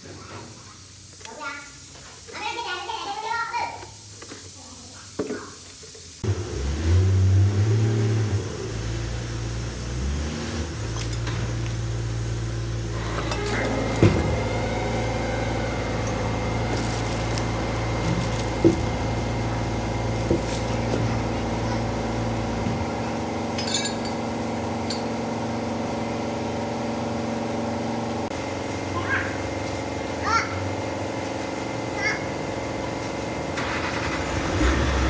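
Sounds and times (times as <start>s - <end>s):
wheel loader engine running: 6.2s - 35.0s
sharp metallic clinks: 23.6s - 25.1s.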